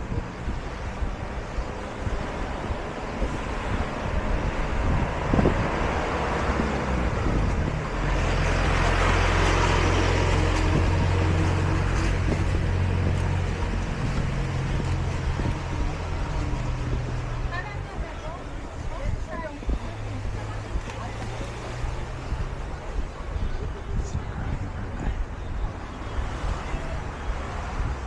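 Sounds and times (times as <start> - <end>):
traffic noise: 0.0 - 28.0
vehicle passing by: 1.7 - 18.3.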